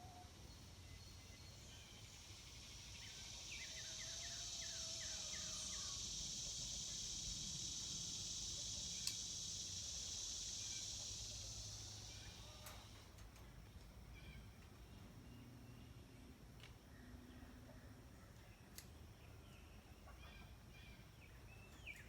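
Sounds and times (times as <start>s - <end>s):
cicada buzzing: 1.7s - 13.0s
sharp click: 9.0s - 9.3s.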